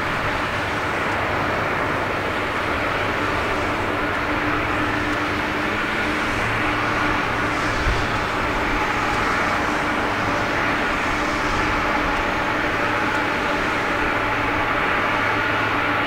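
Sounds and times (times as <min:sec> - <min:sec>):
faint engine whine: 0:00.0 - 0:16.0
jet engines rushing: 0:00.0 - 0:16.0.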